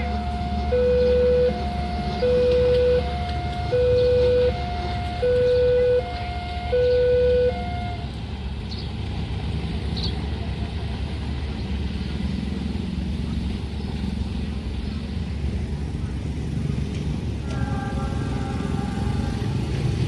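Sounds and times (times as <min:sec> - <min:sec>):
two-tone crossing alarm: 0:00.0 - 0:08.1
rumble of vehicles: 0:00.0 - 0:20.0.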